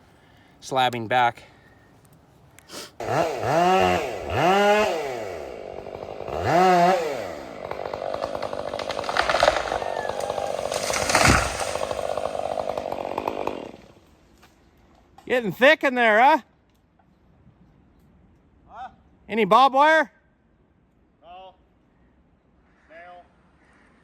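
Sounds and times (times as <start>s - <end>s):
chainsaw revving: 3.0s - 14.1s
chainsaw cutting wood: 3.0s - 14.2s.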